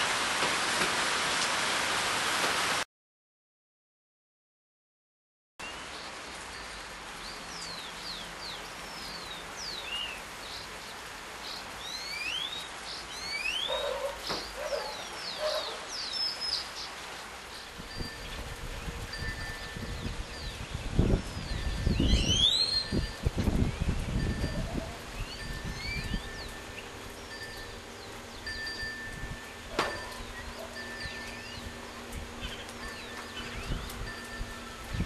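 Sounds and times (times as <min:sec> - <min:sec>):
rain hissing: 0:00.0 - 0:02.8, 0:05.6 - 0:35.0
birds whistling: 0:11.8 - 0:16.7, 0:19.6 - 0:28.6, 0:29.5 - 0:31.8.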